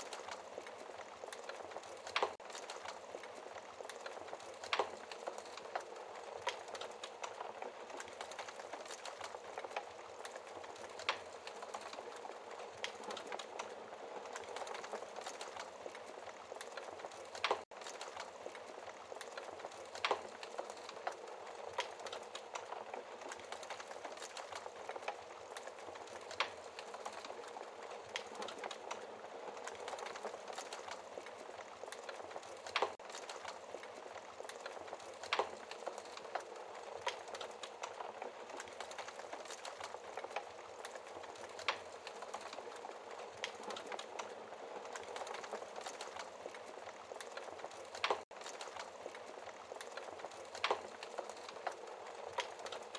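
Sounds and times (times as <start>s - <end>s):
wood fire crackling and popping: 0.0s - 52.9s.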